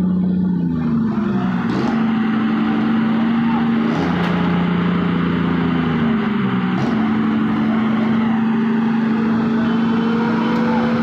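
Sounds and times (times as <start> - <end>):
road noise: 0.0 - 11.0
vehicle engine droning: 0.0 - 11.0.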